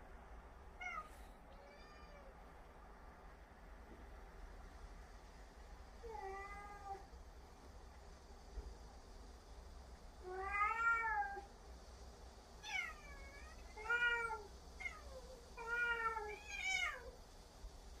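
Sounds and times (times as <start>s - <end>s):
cats meowing: 0.8s - 2.3s, 6.1s - 7.1s, 10.3s - 11.5s, 12.6s - 17.1s.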